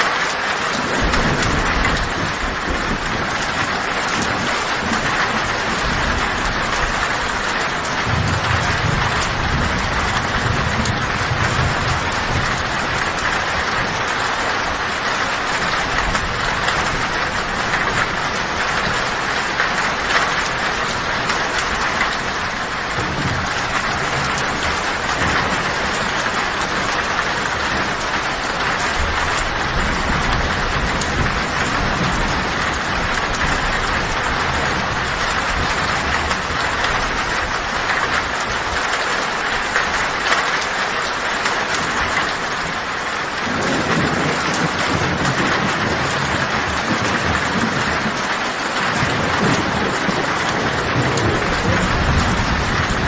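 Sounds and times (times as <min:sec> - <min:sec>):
heavy rain on a tin roof: 0:00.0 - 0:53.0
low thunder rumbling: 0:00.7 - 0:40.3, 0:40.9 - 0:53.0.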